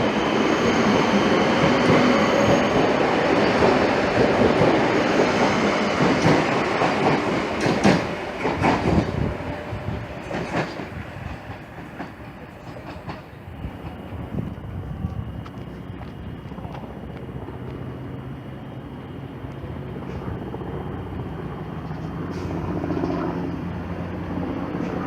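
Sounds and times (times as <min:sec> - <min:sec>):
train wheels clacking on rails: 0:00.0 - 0:17.9.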